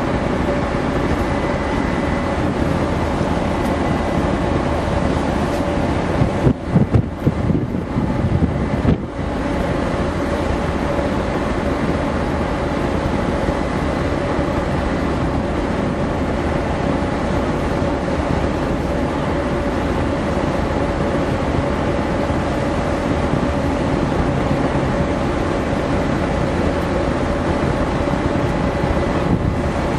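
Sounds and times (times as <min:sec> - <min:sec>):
ferry engines droning: 0:00.0 - 0:29.9
wind buffeting microphone: 0:00.1 - 0:09.8, 0:28.1 - 0:29.9.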